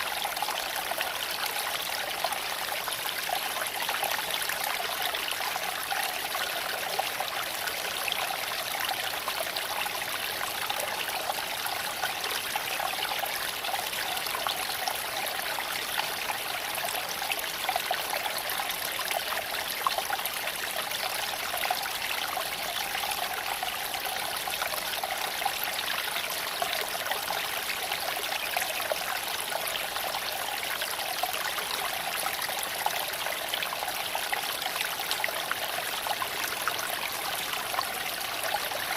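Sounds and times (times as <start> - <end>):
creek babbling over stones: 0.0 - 38.9.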